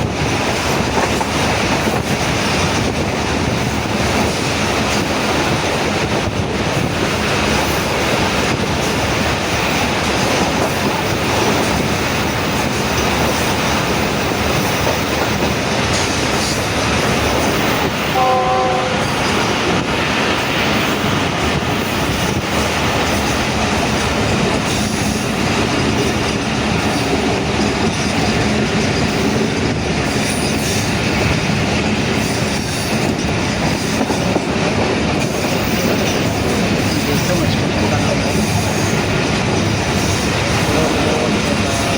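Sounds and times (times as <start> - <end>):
train wheels rumbling and rattling: 0.0 - 41.9
train horn: 18.1 - 19.5.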